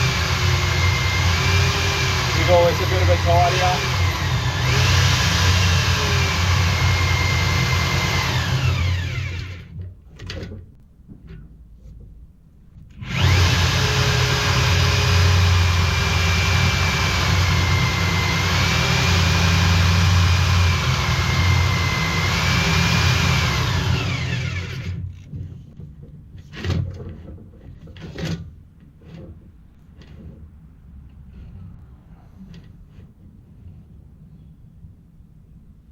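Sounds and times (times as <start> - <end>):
power tool motor whining: 0.0 - 9.7, 13.0 - 25.2.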